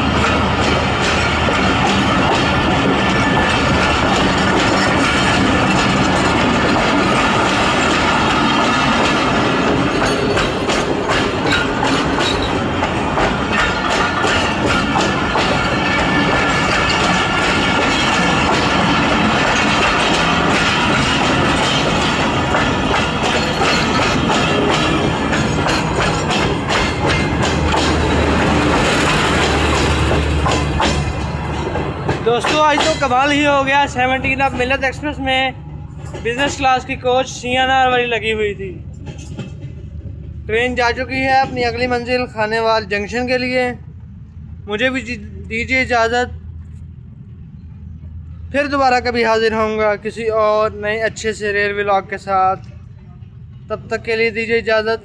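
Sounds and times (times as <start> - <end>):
train wheels clacking over rail joints: 0.0 - 55.0
train wheel squeal: 9.9 - 12.6, 19.4 - 28.2.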